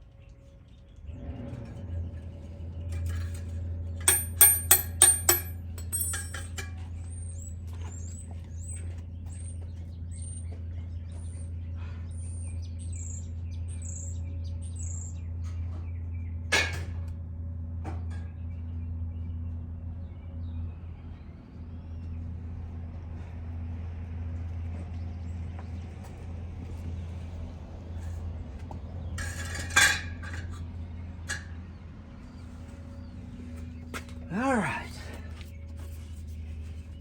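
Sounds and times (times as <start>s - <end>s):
low hum: 0.0s - 37.0s
ringing metal clinks: 2.8s - 6.9s.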